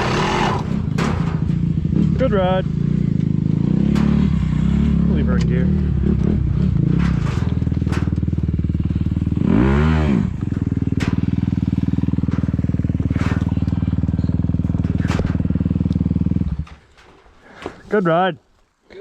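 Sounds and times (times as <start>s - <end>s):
dirt bike engine idling: 0.0s - 17.9s.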